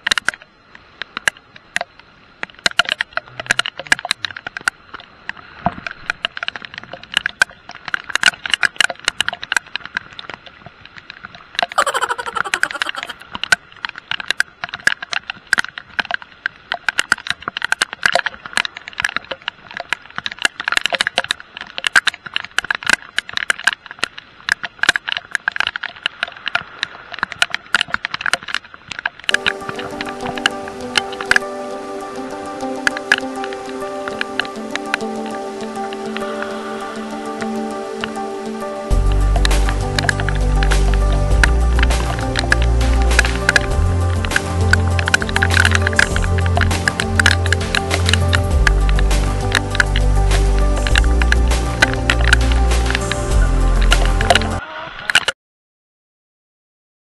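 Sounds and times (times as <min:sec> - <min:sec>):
heavy rain hitting camera: 0:22.6 - 0:54.6.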